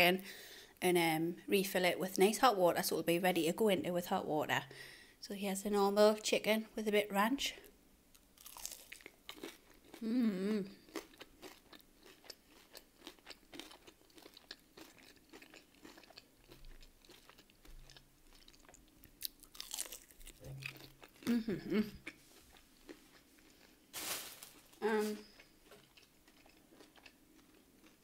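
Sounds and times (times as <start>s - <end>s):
chewing crunchy food: 8.2s - 23.9s, 24.6s - 28.0s
closed-mouth hum: 10.0s - 10.8s, 20.4s - 22.2s.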